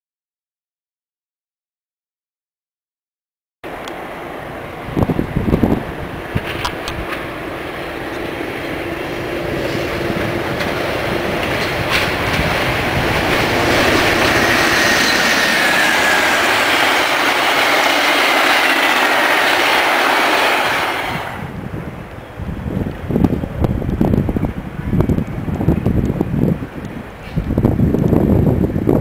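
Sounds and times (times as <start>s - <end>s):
train wheels rumbling on rails: 3.7s - 29.0s
faint high sliding tone: 13.9s - 17.1s.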